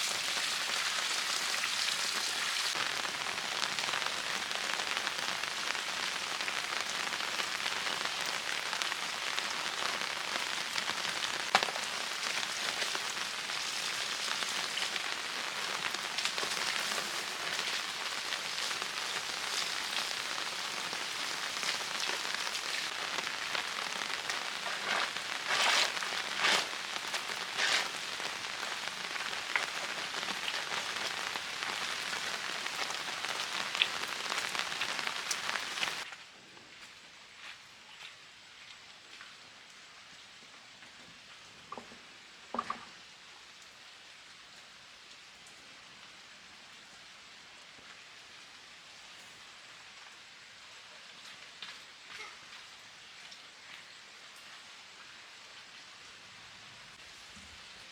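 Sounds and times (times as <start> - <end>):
heavy rain falling: 2.7 - 36.1.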